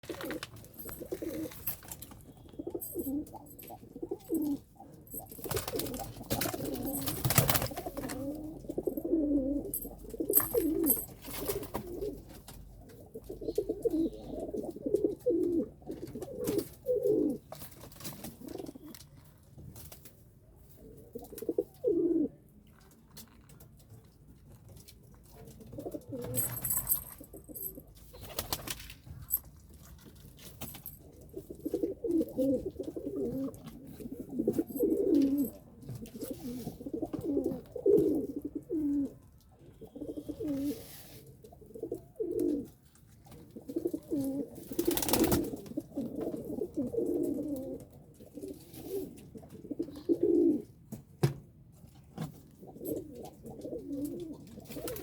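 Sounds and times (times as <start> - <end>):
pigeons cooing: 0.1 - 1.7, 2.4 - 17.6, 21.0 - 22.4, 31.3 - 39.2, 39.8 - 40.9, 41.6 - 42.8, 43.5 - 50.7, 52.6 - 55.0.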